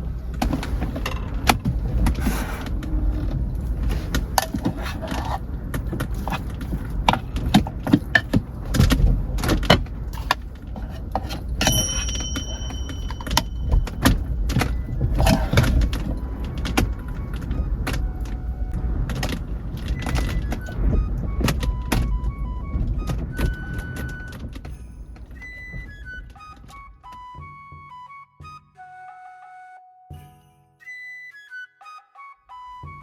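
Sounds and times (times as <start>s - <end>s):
background music with plinking notes: 11.6s - 33.0s
low rumble: 11.8s - 26.3s.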